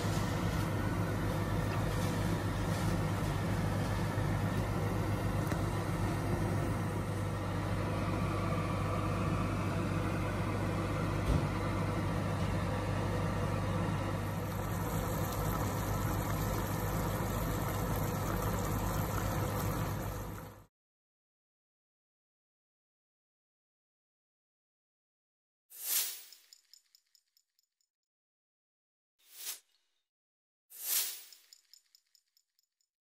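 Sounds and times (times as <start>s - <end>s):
low machine hum: 0.0s - 20.7s.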